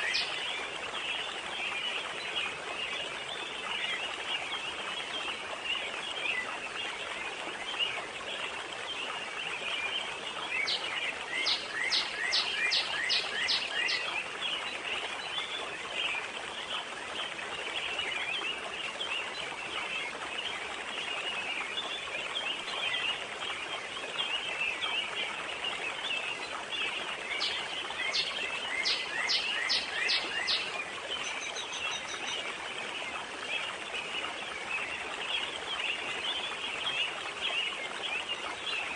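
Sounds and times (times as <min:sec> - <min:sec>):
wind and water: 0:00.0 - 0:38.9
birds and insects chirping: 0:27.3 - 0:30.7.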